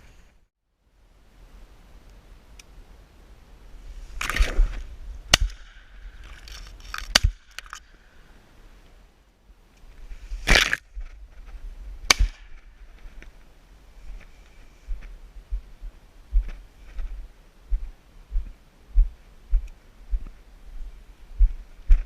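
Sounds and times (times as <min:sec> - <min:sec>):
loud shotgun blasts: 0:12.1 - 0:12.5.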